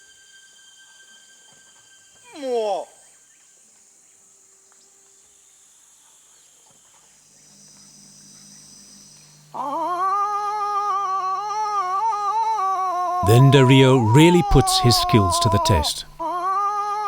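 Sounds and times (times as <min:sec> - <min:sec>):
insect chorus: 0:07.3 - 0:09.6.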